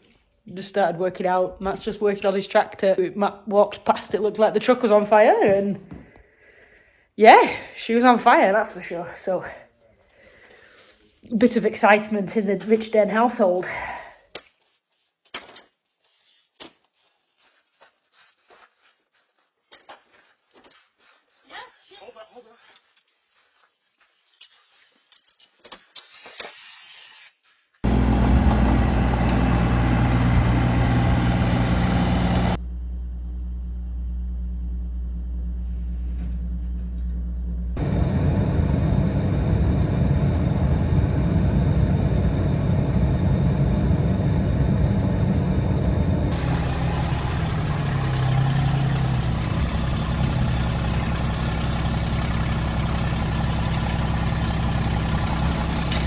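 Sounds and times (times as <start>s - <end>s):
vehicle engine humming: 27.8s - 56.0s.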